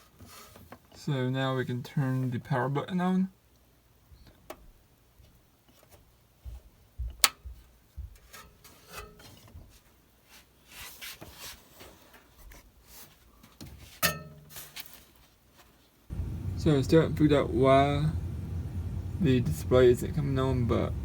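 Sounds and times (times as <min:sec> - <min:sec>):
low thumps: 0:16.1 - 0:21.0.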